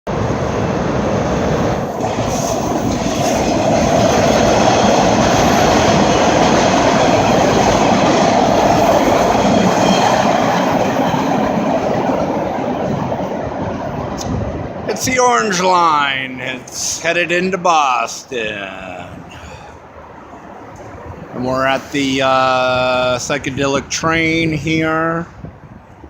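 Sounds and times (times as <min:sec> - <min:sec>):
subway train passing on rails: 0:00.1 - 0:26.0.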